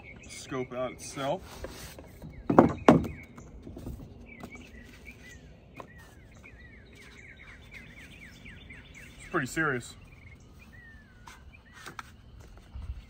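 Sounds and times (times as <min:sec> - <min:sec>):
songbird chirping: 0:00.0 - 0:13.0.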